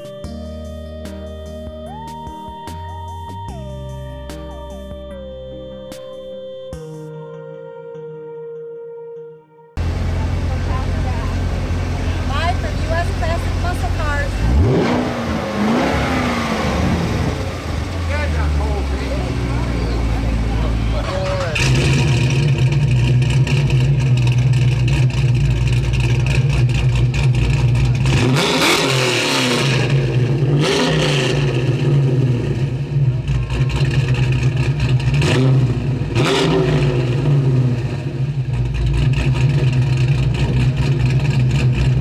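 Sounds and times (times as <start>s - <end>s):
car engine revving: 9.8s - 42.0s.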